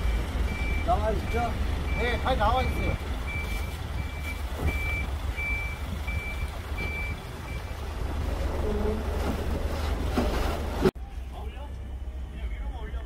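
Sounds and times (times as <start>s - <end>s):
reversing alarm beeping: 0.0s - 7.8s
low engine rumble: 0.0s - 13.0s.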